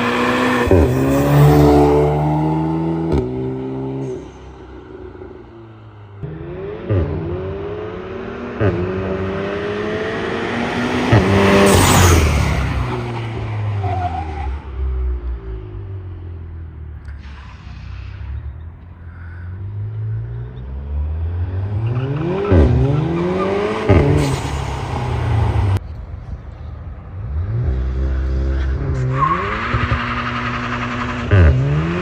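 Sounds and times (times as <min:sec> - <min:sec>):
car engine revving hard: 0:06.2 - 0:12.9, 0:21.0 - 0:25.8, 0:27.3 - 0:32.0.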